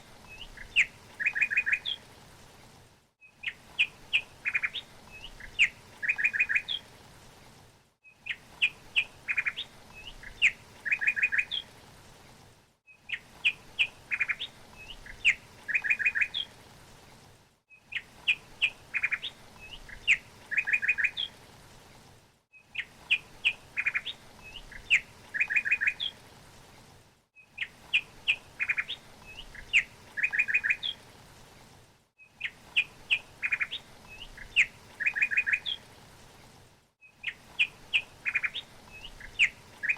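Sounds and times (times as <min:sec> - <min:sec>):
faint steady hiss: 0:00.0 - 0:39.9
songbird chirping and trilling: 0:00.2 - 0:02.0, 0:03.2 - 0:06.8, 0:08.1 - 0:11.7, 0:12.9 - 0:16.5, 0:17.8 - 0:21.4, 0:22.6 - 0:26.2, 0:27.4 - 0:31.0, 0:32.2 - 0:35.8, 0:37.1 - 0:39.9.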